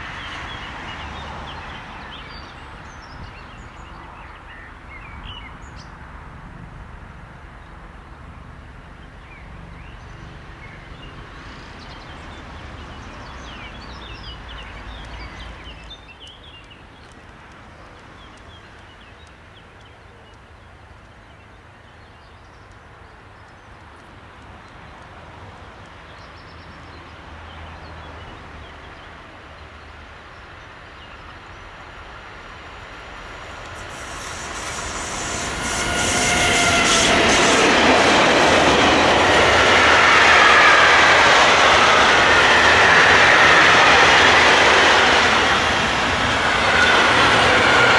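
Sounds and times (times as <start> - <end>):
freight train approaching: 0.0 - 47.9
small birds chirping: 9.0 - 31.8.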